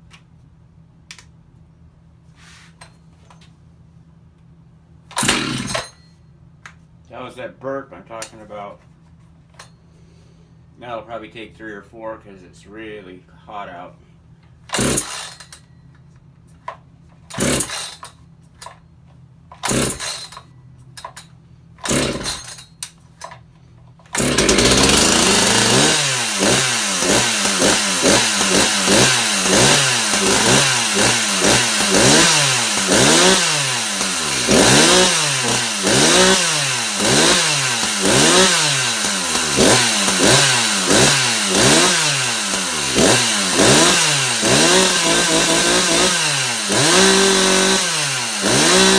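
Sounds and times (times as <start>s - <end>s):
starter cord pulls: 5.1s - 5.9s, 14.7s - 15.6s, 19.5s - 20.4s, 21.8s - 23.4s, 24.0s - 48.9s
chainsaw engine running: 5.2s - 6.0s, 14.7s - 15.5s, 17.4s - 18.1s, 19.6s - 20.4s, 21.8s - 22.6s, 24.1s - 48.9s.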